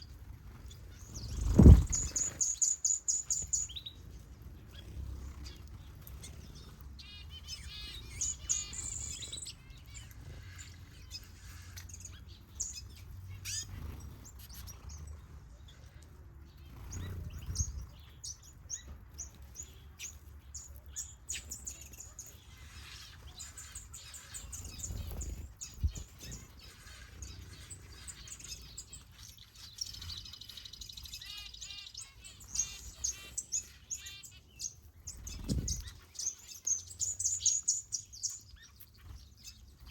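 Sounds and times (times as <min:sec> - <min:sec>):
finches chirping and trilling: 0:00.0 - 0:39.9.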